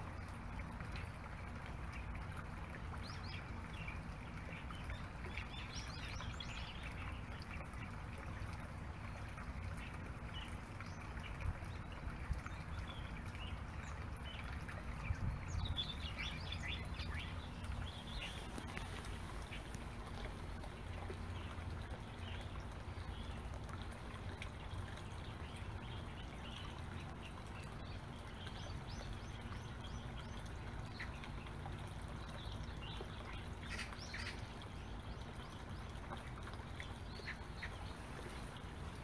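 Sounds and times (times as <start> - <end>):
small birds chirping: 9.0 - 39.0.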